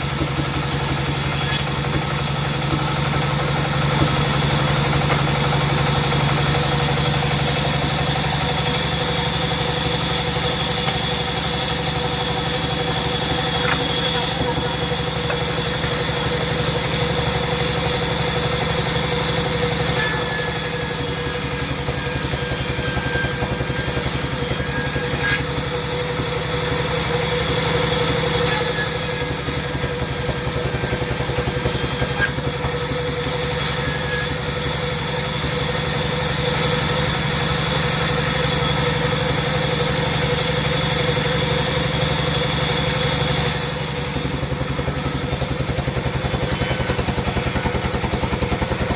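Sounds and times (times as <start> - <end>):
sawmill machinery humming: 0.0 - 48.9.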